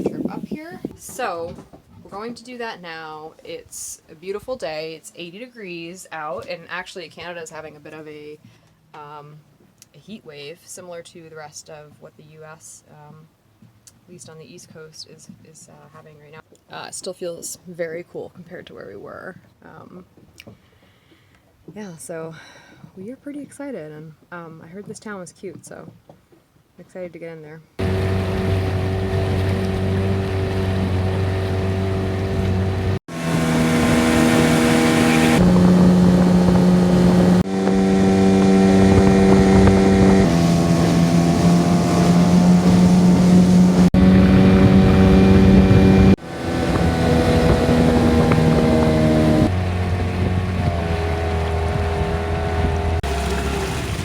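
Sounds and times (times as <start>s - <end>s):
wind on microphone: 0.0s - 2.3s, 29.2s - 53.1s
small outboard motor running: 27.8s - 54.0s.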